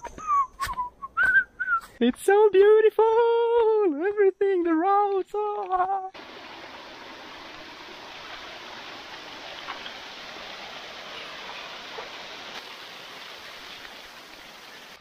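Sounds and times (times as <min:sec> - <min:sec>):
stream of water running: 0:06.2 - 0:15.0.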